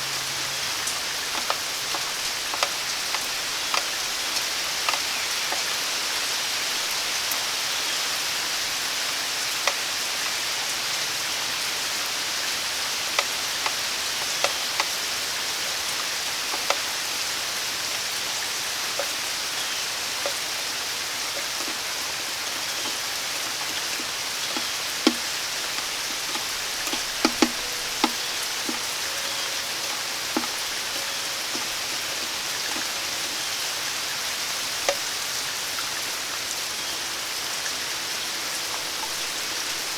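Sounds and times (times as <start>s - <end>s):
rain hissing: 0.0s - 39.9s
single raindrops landing close: 0.3s - 5.8s, 18.9s - 35.2s.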